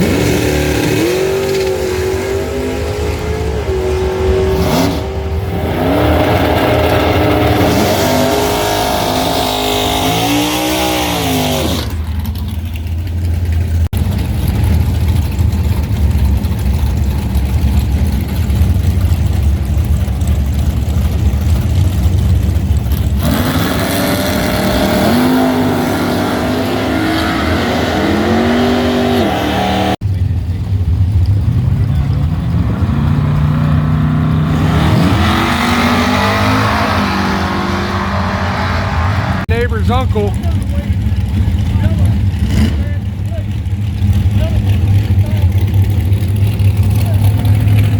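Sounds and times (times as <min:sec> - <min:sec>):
deep engine rumble: 0:00.0 - 0:09.8, 0:11.5 - 0:47.9
car engines revving: 0:00.0 - 0:47.9.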